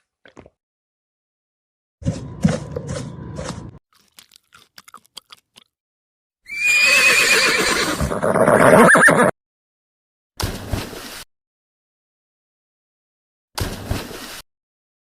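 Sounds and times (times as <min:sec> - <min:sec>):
horse neighing: 0:06.5 - 0:09.3.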